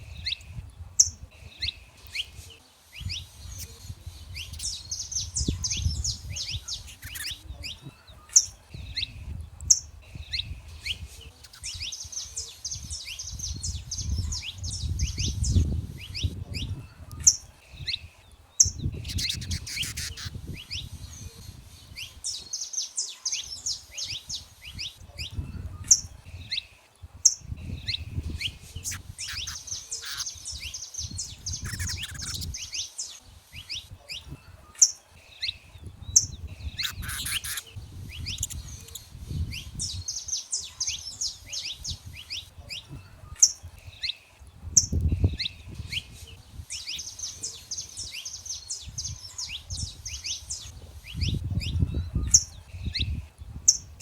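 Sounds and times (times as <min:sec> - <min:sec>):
finches chirping and singing: 0:00.0 - 0:54.0.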